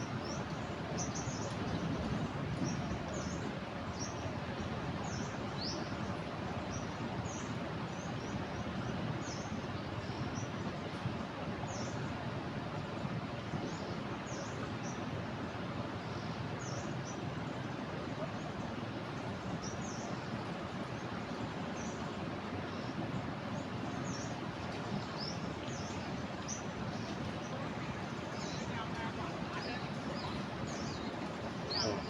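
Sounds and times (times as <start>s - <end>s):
river pouring over a weir: 0.0s - 32.0s
small birds chirping: 28.2s - 32.0s.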